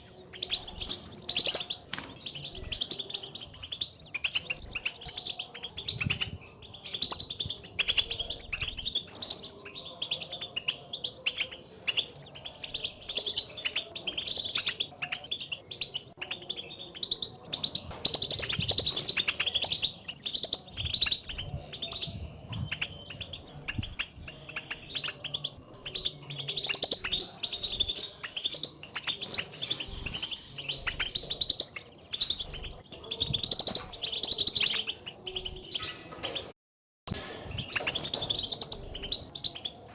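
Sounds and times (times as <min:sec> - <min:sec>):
goldfinches twittering chirps: 0:00.0 - 0:36.4.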